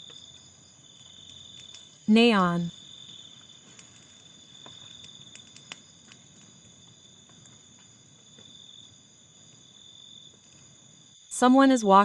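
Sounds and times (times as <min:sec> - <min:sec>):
crickets chirping: 0:00.0 - 0:12.0
faint clicks: 0:01.0 - 0:01.9, 0:03.7 - 0:06.5.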